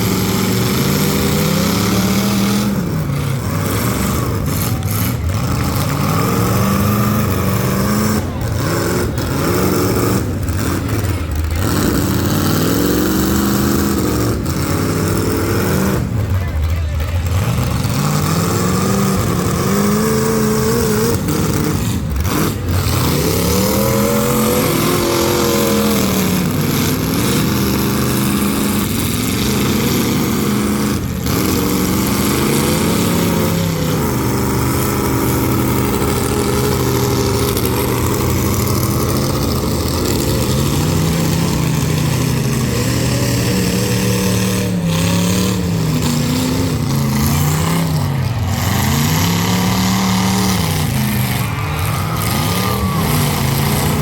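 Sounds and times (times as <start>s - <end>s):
car engines revving hard: 0.0s - 54.0s.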